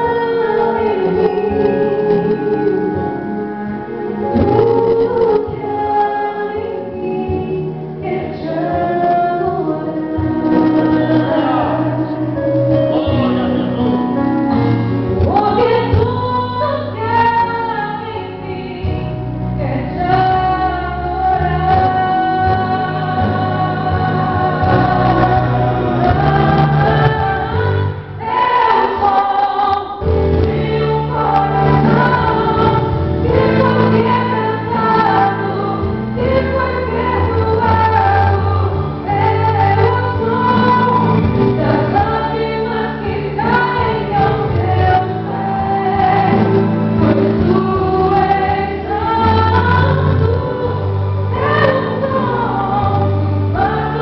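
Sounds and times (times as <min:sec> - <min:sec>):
woman singing a gospel ballad: 0:00.0 - 0:03.2, 0:04.2 - 0:13.9, 0:15.2 - 0:54.0
choir backing vocals: 0:00.0 - 0:16.0, 0:20.0 - 0:54.0
instrumental accompaniment: 0:00.0 - 0:54.0.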